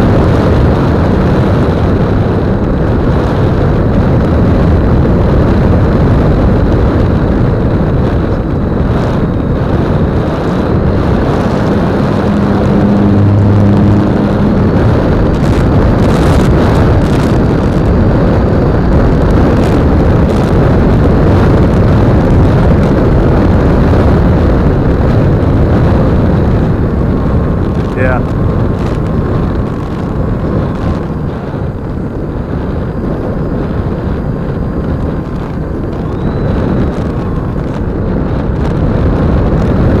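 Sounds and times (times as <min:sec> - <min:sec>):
motor and propeller whine: 0:00.0 - 0:40.0
wind rushing over microphone: 0:00.0 - 0:40.0
short low hum: 0:08.3 - 0:17.3.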